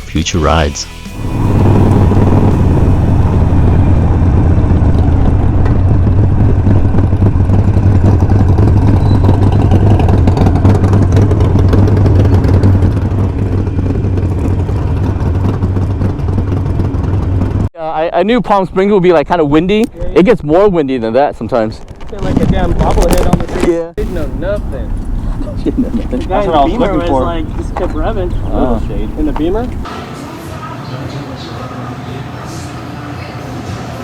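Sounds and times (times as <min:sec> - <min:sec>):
motorcycle engine running: 0:01.1 - 0:17.7, 0:24.0 - 0:29.9
wind rushing over microphone: 0:01.2 - 0:17.7, 0:24.0 - 0:29.9.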